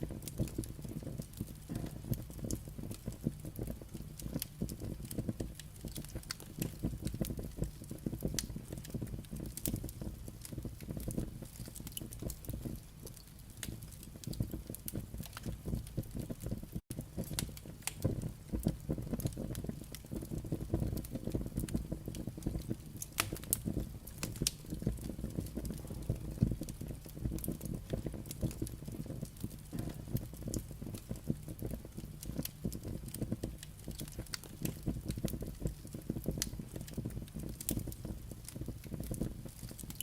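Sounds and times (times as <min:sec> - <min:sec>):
firewood crackling and popping: 0:00.0 - 0:40.0
low rumble of flames: 0:00.0 - 0:40.0.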